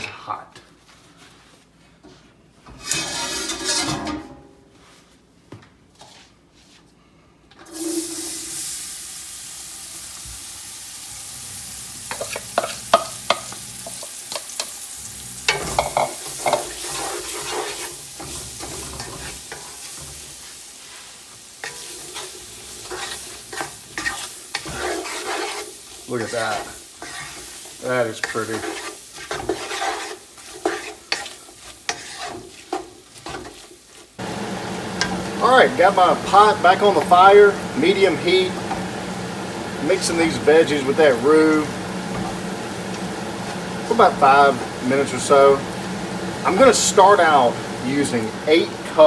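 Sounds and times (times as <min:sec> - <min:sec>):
spoon scraping a pot: 0:02.7 - 0:04.2, 0:12.1 - 0:20.2, 0:21.6 - 0:34.1
vegetables sizzling in roux: 0:07.7 - 0:49.0.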